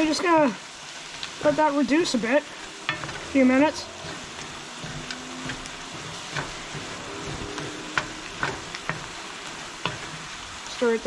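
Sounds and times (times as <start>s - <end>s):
food sizzling in a skillet: 0.0s - 11.0s
wooden spoon scraping a pan: 0.0s - 11.0s.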